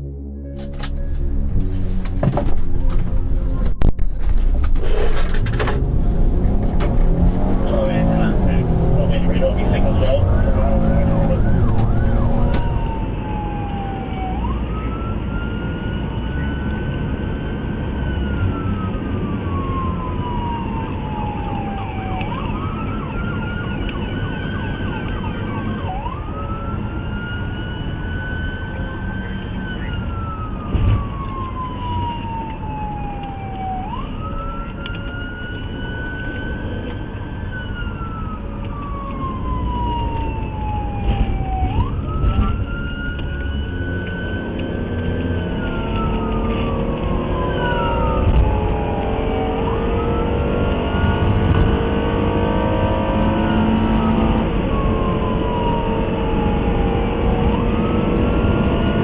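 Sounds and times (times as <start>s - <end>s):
engine and road rumble: 0.0s - 59.0s
police siren wailing: 4.9s - 59.0s.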